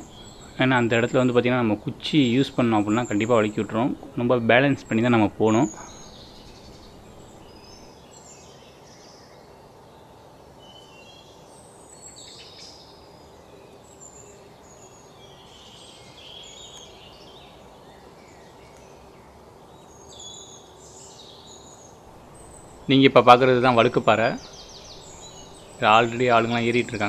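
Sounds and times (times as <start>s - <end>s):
birds chirping: 0.0s - 9.2s, 19.6s - 27.0s
faint outdoor hiss: 0.0s - 27.0s.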